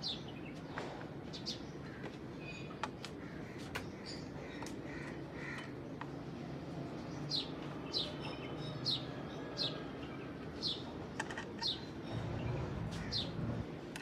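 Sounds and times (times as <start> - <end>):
bird chirping: 6.9 - 13.6.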